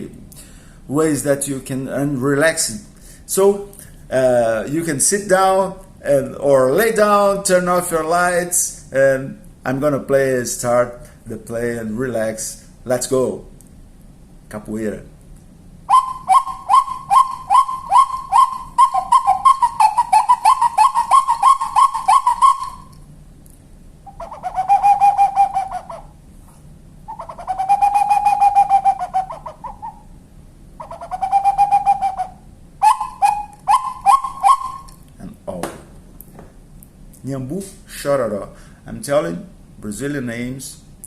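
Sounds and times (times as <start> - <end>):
wooden bird call whistling: 15.9 - 23.0, 24.1 - 26.2, 27.1 - 30.2, 30.8 - 35.0.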